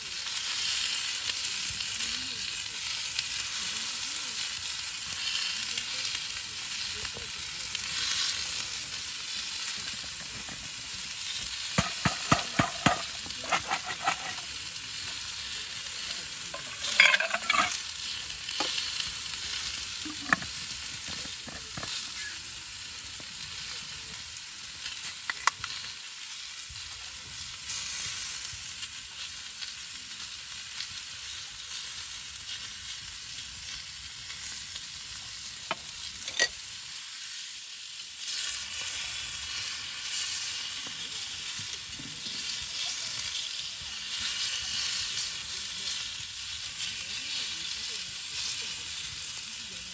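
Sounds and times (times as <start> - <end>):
food sizzling in a pan: 0.0 - 49.9
utensil clattering against pan: 11.8 - 14.5, 16.5 - 17.8, 20.1 - 22.0.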